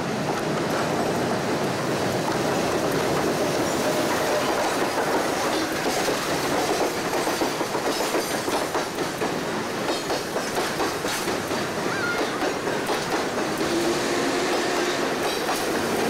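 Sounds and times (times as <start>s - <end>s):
train wheels clickety-clack: 0.0s - 16.0s.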